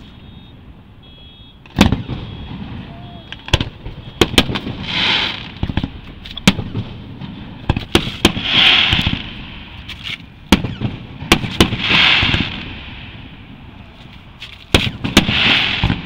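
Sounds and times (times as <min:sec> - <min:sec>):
fireworks hissing: 0:02.6 - 0:06.3, 0:07.0 - 0:16.0
firework shells bursting: 0:14.2 - 0:16.0.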